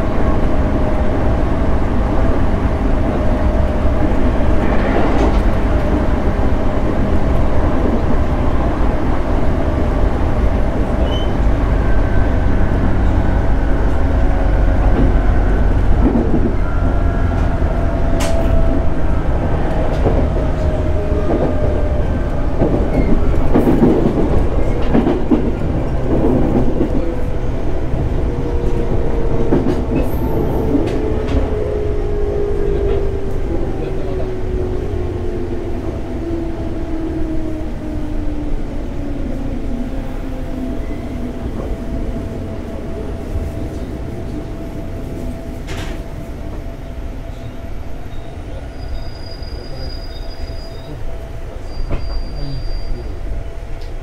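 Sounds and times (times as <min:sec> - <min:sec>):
train motor and gear hum: 0:00.0 - 0:54.0
wheels rumbling on rail: 0:00.0 - 0:54.0
rail-joint clatter: 0:04.6 - 0:06.1, 0:17.3 - 0:18.8, 0:19.6 - 0:27.2, 0:45.6 - 0:46.2, 0:51.6 - 0:53.0.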